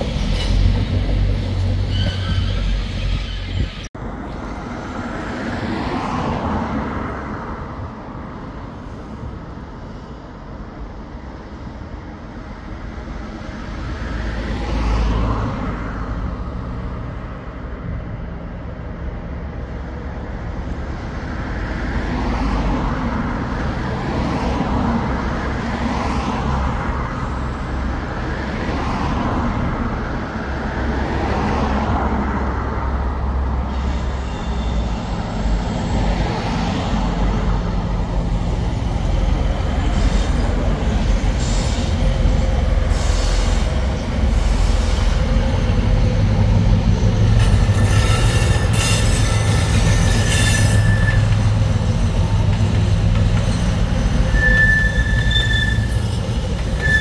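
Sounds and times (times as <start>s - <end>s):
train rumble: 0.0s - 57.0s
high-pitched wheel squeal: 1.5s - 3.9s, 33.7s - 35.3s, 47.0s - 57.0s.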